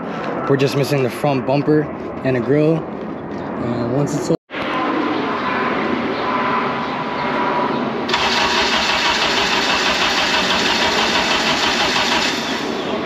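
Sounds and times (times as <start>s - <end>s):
car engine running: 8.1s - 12.7s.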